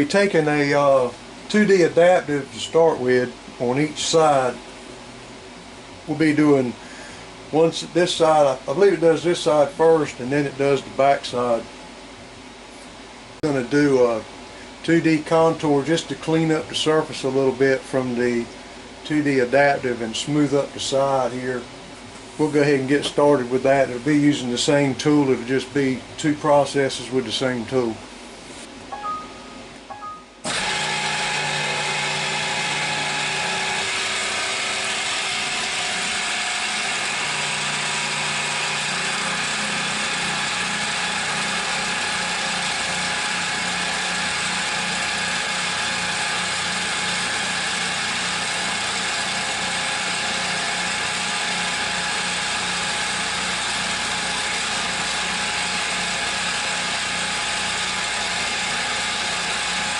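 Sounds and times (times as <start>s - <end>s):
milling machine cutting: 30.4s - 59.9s.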